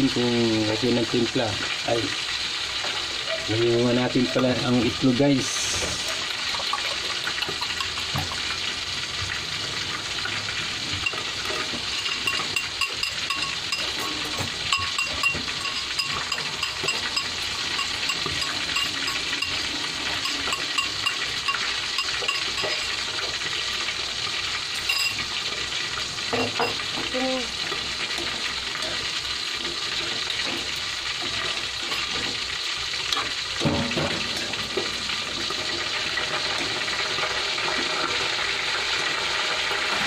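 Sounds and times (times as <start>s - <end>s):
vegetables sizzling in a wok: 0.0s - 40.0s
spoon scraping and tapping a bowl: 6.6s - 8.4s, 10.9s - 23.4s, 24.8s - 25.3s.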